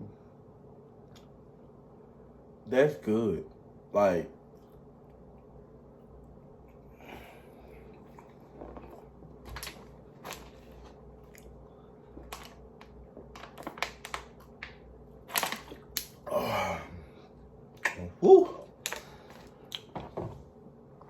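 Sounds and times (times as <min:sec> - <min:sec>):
food chewing with wet mouth clicks: 0:07.8 - 0:09.2, 0:11.2 - 0:13.0
low voiced sound: 0:16.3 - 0:17.2, 0:17.9 - 0:18.7.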